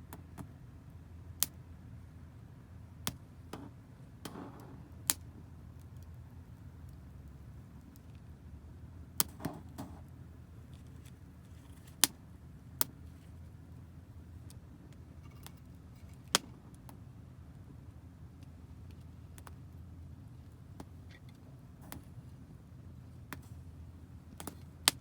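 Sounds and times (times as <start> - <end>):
wood fire crackling: 9.2 - 17.1.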